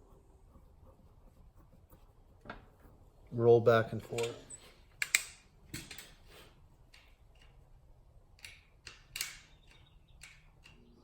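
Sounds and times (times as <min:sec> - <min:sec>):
sharp clicks: 0:08.3 - 0:11.0.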